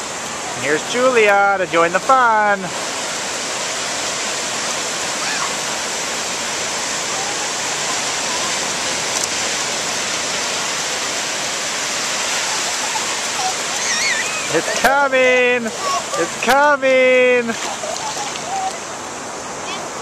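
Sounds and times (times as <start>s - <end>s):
ocean surf washing on shore: 0.0s - 20.0s.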